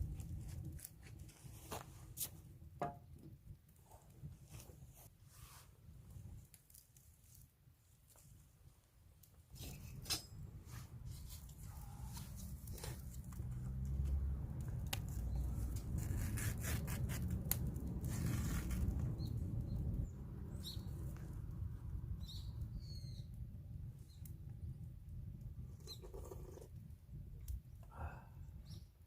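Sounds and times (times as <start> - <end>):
wood fire crackling: 0.0 - 27.8
low fire rumble: 0.0 - 29.0.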